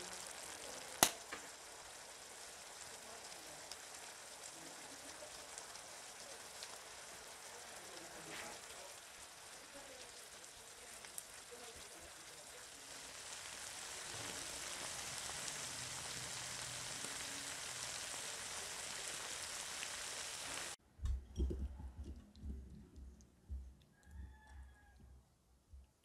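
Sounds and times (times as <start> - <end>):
food sizzling in a frying pan: 0.0 - 20.8.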